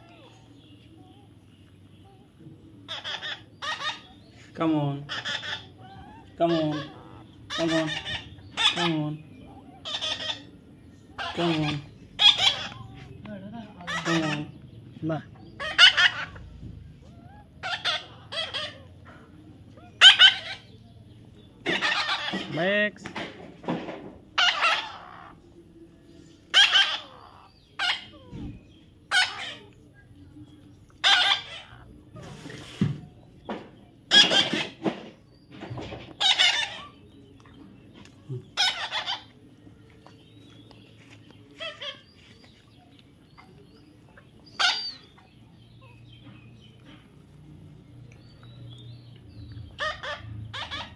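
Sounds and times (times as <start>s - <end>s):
birds squawking: 2.4s - 23.4s, 24.3s - 47.2s, 48.2s - 50.9s
parrot squawking: 2.9s - 4.2s, 5.0s - 9.0s, 9.7s - 10.6s, 11.2s - 12.9s, 13.8s - 14.6s, 15.4s - 16.4s, 17.1s - 19.0s, 19.8s - 20.7s, 21.6s - 22.6s, 24.4s - 25.4s, 26.5s - 28.3s, 29.1s - 29.7s, 31.0s - 32.3s, 34.1s - 34.8s, 36.2s - 37.0s, 38.5s - 39.4s, 41.6s - 42.2s, 44.5s - 45.3s, 49.7s - 50.9s.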